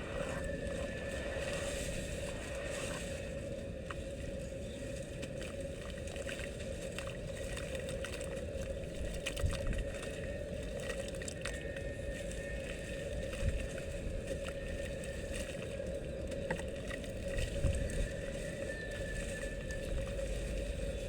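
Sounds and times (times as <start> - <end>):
steady low rumble: 0.0 - 6.0
dirt crackling and bubbling in water: 0.0 - 21.0.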